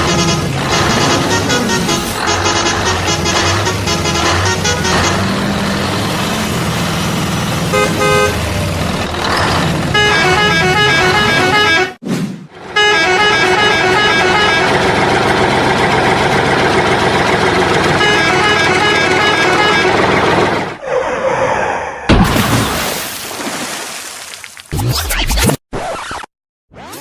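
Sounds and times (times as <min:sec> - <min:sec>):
horn toots: 0:00.0 - 0:05.6, 0:07.7 - 0:08.5, 0:09.9 - 0:12.0, 0:12.7 - 0:15.0, 0:17.8 - 0:20.3
vehicle engine running: 0:00.0 - 0:11.8, 0:12.6 - 0:20.8.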